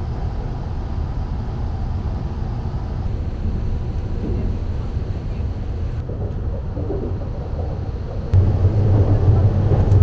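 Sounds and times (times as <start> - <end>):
train rumbling on track: 0.0 - 10.0.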